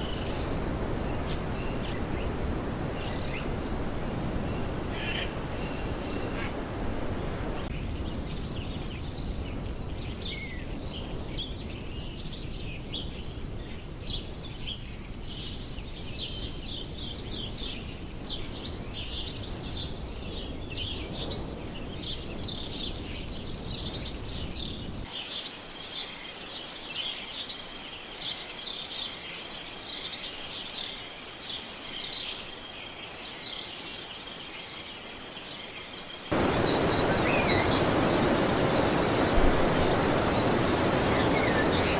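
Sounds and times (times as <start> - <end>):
small birds chirping: 0.0 - 7.7, 25.1 - 41.9
steady high hum: 36.3 - 41.9.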